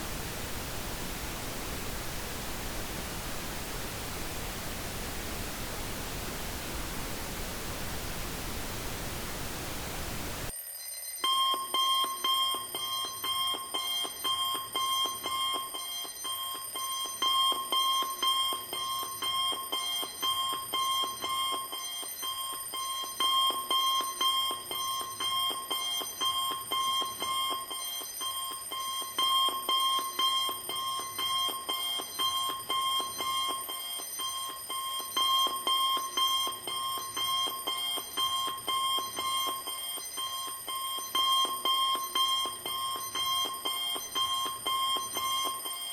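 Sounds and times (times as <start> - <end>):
pink noise hiss: 0.0 - 10.5.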